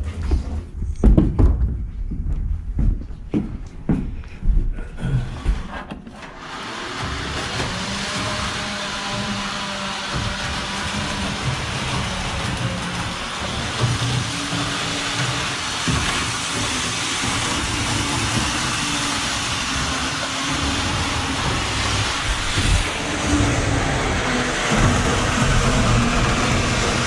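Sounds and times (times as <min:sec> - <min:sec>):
model train running on rails: 0:06.4 - 0:27.0
low hums: 0:07.0 - 0:27.0.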